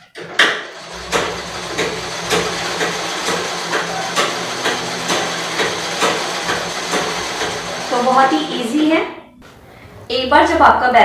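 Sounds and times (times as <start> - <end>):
sewing machine clicking: 0.0 - 8.7
sewing machine whirring: 0.0 - 9.0.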